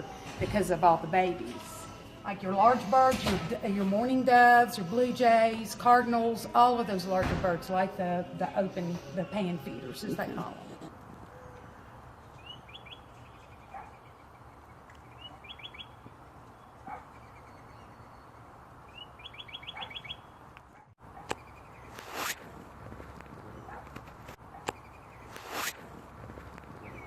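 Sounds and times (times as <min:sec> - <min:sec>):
songbird singing: 0:11.2 - 0:22.0, 0:23.2 - 0:25.4, 0:26.5 - 0:27.0.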